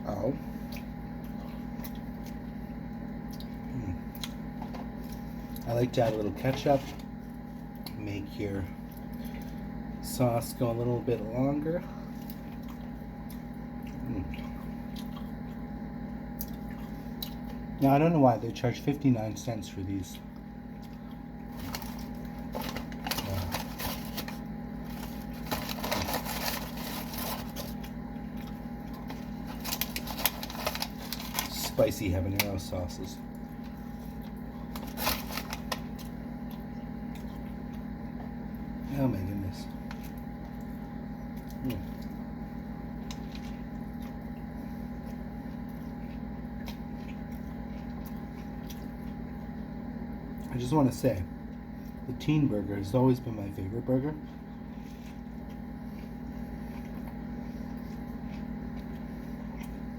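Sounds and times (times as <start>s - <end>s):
low electrical hum: 0.0s - 59.9s
food packaging crackling: 20.9s - 37.8s.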